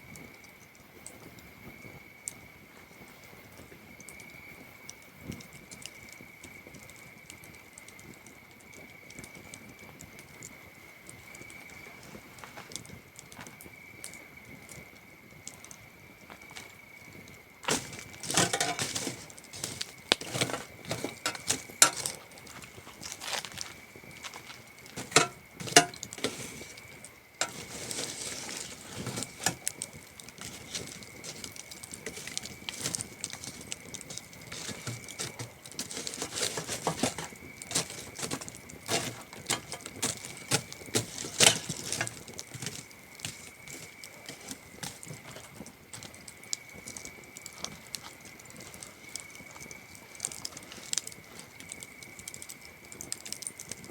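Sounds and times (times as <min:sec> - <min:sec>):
campfire wood crackling: 0:00.0 - 0:53.9
crickets trilling: 0:00.0 - 0:53.9.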